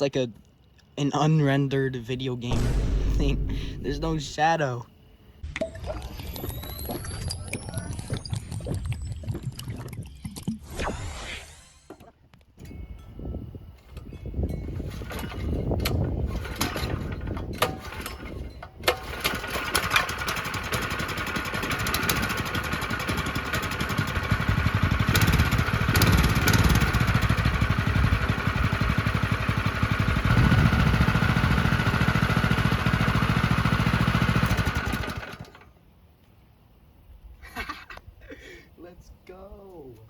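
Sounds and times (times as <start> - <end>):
minibike engine running: 19.0 - 35.5.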